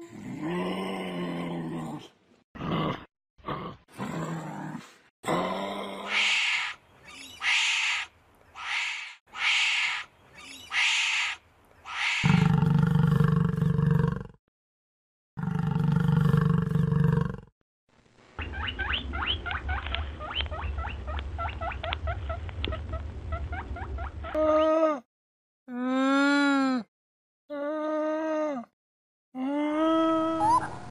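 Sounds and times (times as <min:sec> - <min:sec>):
hoarse breathy calls: 0:10.7 - 0:12.7.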